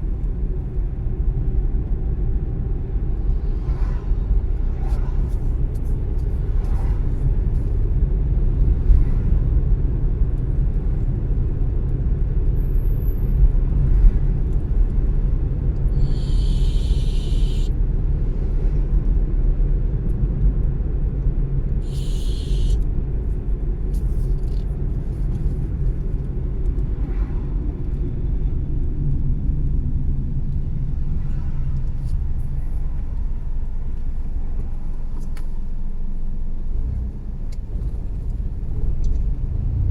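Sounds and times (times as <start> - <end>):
car engine and road noise: 0.0 - 39.9
short hisses: 16.0 - 17.7, 21.8 - 22.8.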